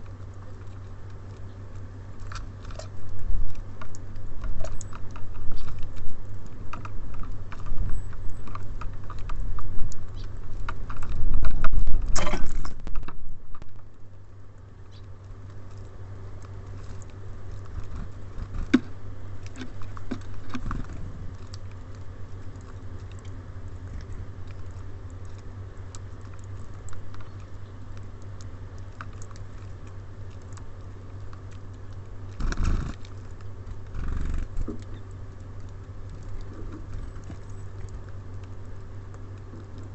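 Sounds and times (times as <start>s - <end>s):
birds pecking and cracking seeds: 0.0s - 39.9s.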